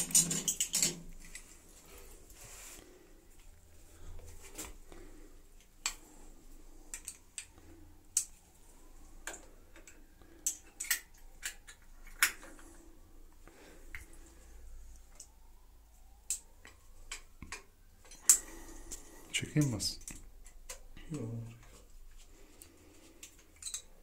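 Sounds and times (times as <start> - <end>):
small hard parts clicking: 0.0 - 1.5, 6.9 - 8.4, 9.2 - 12.7, 22.6 - 24.0.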